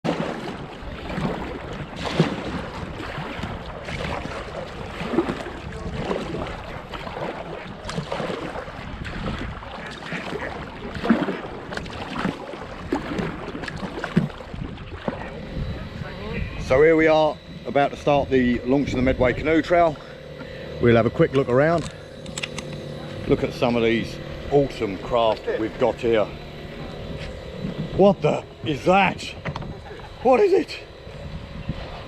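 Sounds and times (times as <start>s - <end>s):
knocks and splashes: 0.0s - 15.8s
moving water: 0.0s - 32.0s
wind buffeting microphone: 0.6s - 32.0s.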